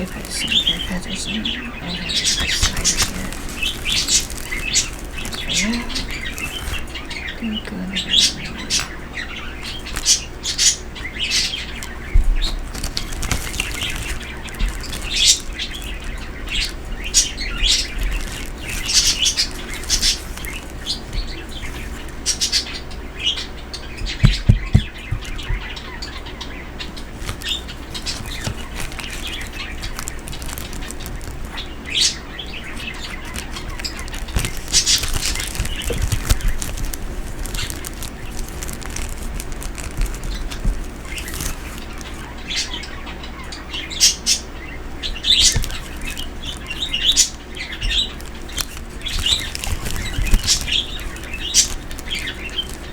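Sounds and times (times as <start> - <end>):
birds chirping: 0.0 - 52.9
soft low thumps: 24.0 - 25.8.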